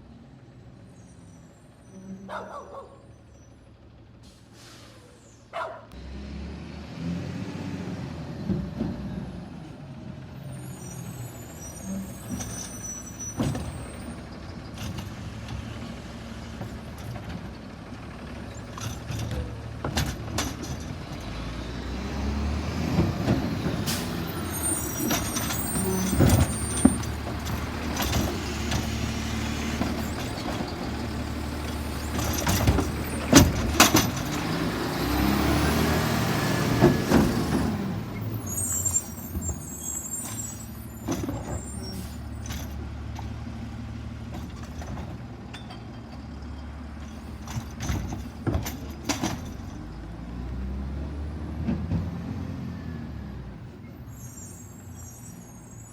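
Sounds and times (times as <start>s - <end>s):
air brakes squealing: 0.9s - 2.6s, 3.2s - 5.6s, 10.4s - 14.4s, 23.5s - 34.5s, 37.3s - 42.8s, 53.8s - 55.9s
garbage truck engine humming: 8.0s - 54.9s.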